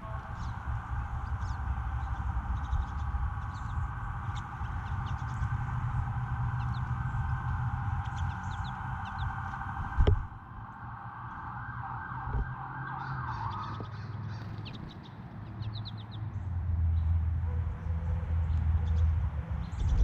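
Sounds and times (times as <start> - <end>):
small birds chirping: 0.0 - 10.4, 12.8 - 17.2, 18.4 - 20.0
distant siren wailing: 0.0 - 14.9
low steady rumble: 0.0 - 20.0.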